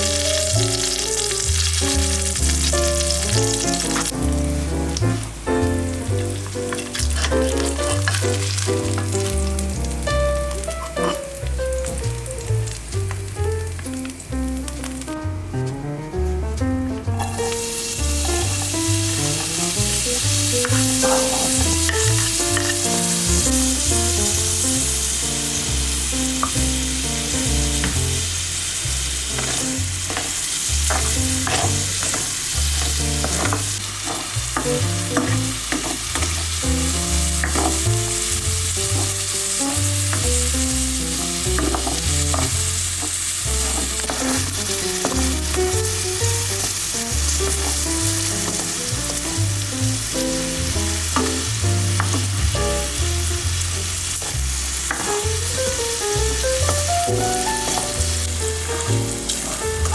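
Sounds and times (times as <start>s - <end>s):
food sizzling in a pan: 0.0s - 59.9s
utensil tapping against pan: 37.4s - 38.0s, 51.1s - 52.4s.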